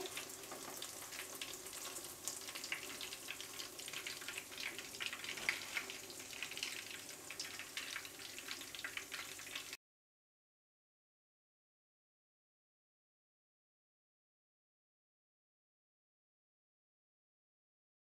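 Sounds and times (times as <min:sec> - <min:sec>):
meat sizzling in hot oil: 0:00.0 - 0:09.8.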